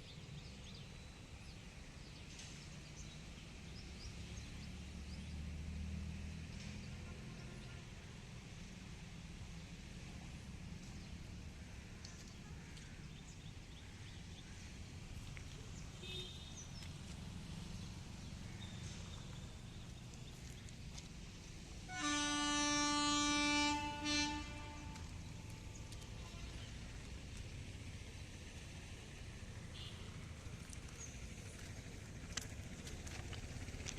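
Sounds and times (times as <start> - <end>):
locomotive air horn: 7.0 - 8.0, 21.8 - 26.7.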